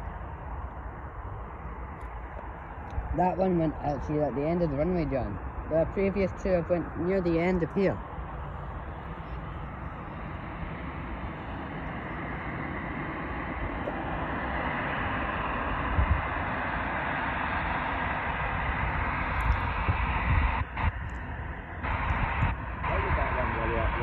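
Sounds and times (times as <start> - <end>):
jet airliner engines roaring: 0.0 - 24.0
wind buffeting microphone: 0.0 - 24.0.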